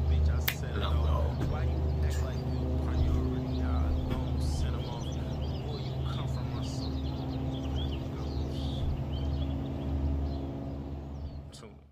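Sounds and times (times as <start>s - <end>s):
birds chirping: 0.0s - 11.9s
steady low hum: 0.0s - 11.9s.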